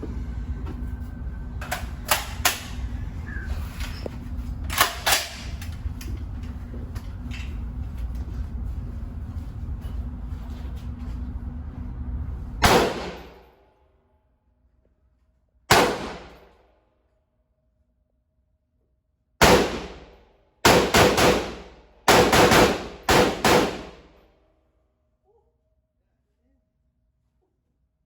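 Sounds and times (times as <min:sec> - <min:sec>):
gunshots: 0:12.6 - 0:13.4, 0:15.7 - 0:16.5, 0:19.4 - 0:24.1.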